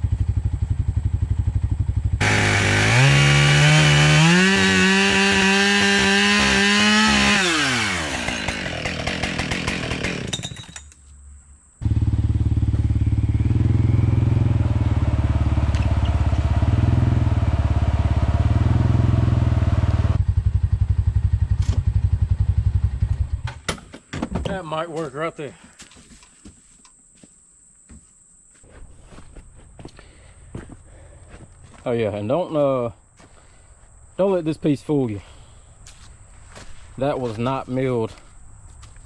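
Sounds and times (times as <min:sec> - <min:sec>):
small gasoline engine revving: 0:00.1 - 0:10.3, 0:11.8 - 0:23.3.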